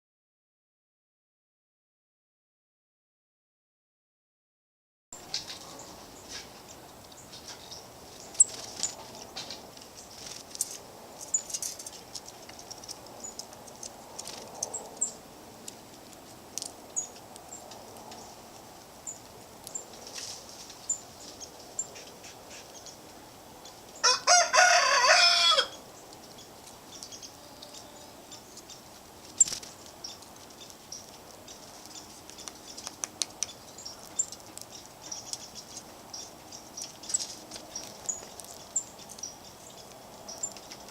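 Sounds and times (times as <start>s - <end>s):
birds chirping: 5.2s - 15.2s, 16.6s - 20.0s, 20.7s - 40.9s
loud harsh bird call: 24.0s - 25.8s.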